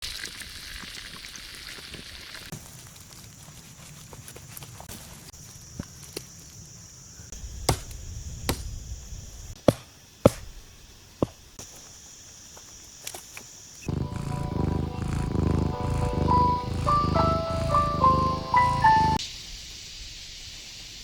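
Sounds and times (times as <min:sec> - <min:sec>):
music: 0:13.9 - 0:19.2.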